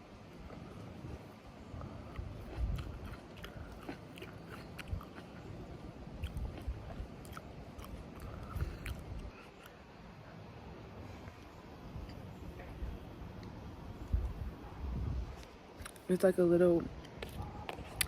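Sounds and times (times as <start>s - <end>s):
person chewing fruit: 0.4s - 10.0s, 17.2s - 18.0s.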